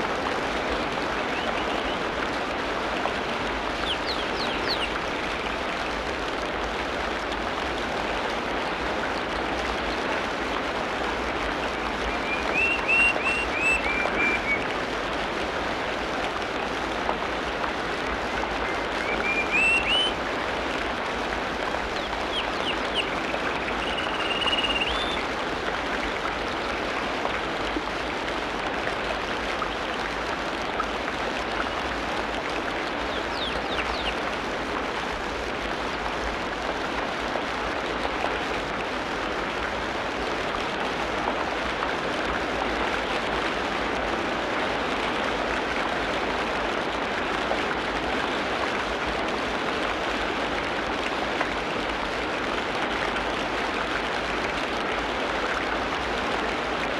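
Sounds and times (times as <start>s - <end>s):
rain hiss: 0.0s - 56.9s
whistled bird calls: 3.8s - 4.9s, 12.0s - 14.6s, 18.7s - 20.2s, 22.3s - 25.2s, 33.1s - 34.2s.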